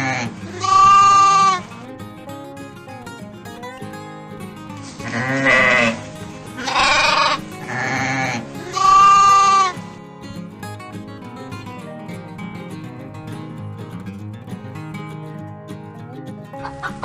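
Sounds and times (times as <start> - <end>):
animal bleating: 0.0 - 1.8, 5.0 - 10.0
acoustic guitar music: 0.0 - 17.0.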